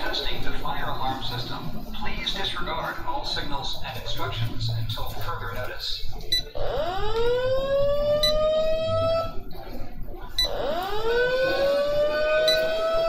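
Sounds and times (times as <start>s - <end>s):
siren-like alarm wailing: 6.5s - 9.5s, 10.4s - 13.0s.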